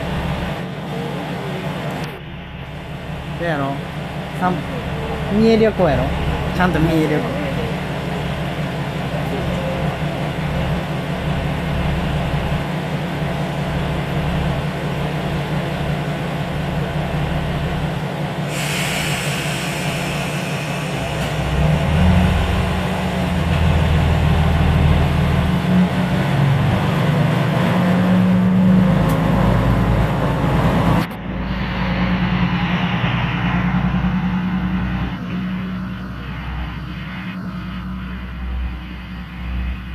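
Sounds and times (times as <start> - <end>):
train humming: 0.0 - 39.9
hiss: 18.4 - 23.5.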